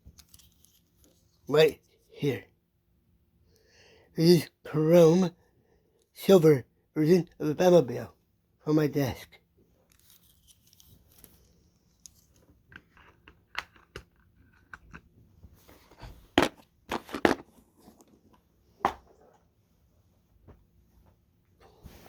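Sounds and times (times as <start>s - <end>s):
small objects knocking on a desk: 16.3s - 17.5s, 18.8s - 19.3s.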